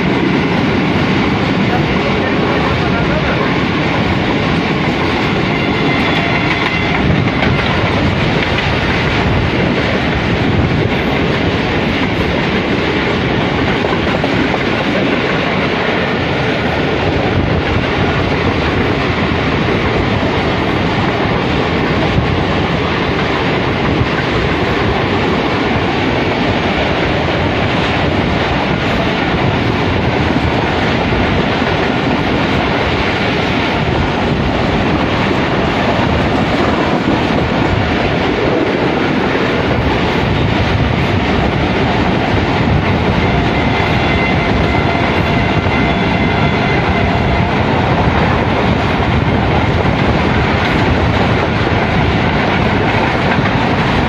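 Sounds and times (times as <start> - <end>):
trains wheels on rails din: 0.0 - 54.0.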